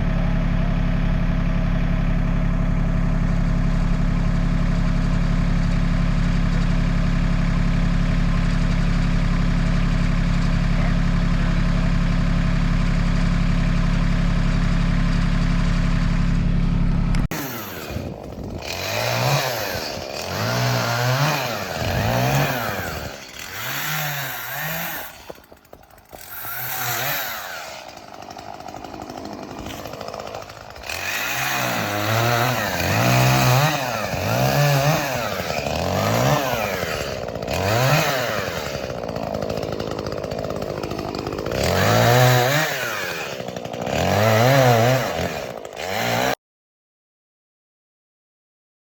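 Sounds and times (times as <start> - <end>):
engine running steadily: 0.0 - 26.6
chainsaw revving: 0.0 - 46.4.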